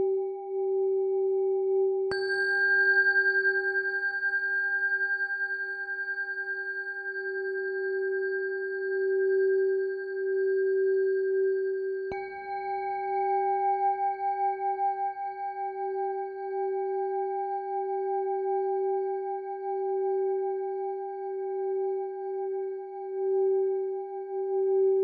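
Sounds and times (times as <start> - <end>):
singing bowl ringing: 2.1 - 14.9.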